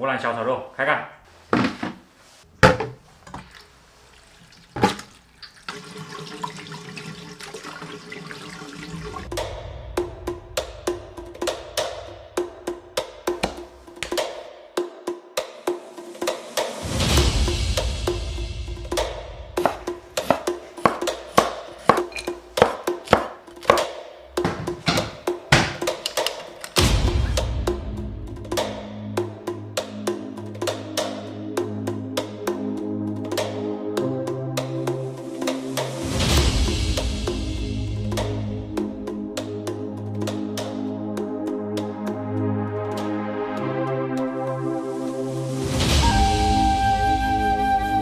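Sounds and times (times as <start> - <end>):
water running into sink: 3.2 - 9.3
knife chopping on wooden board: 19.6 - 26.0
sharp knocks and clatters: 19.6 - 26.9.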